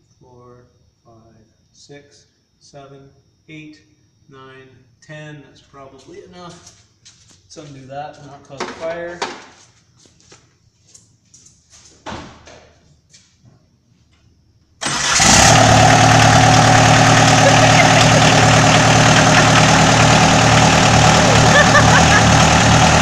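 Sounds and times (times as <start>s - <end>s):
diesel engine starting and idling: 14.8s - 23.0s.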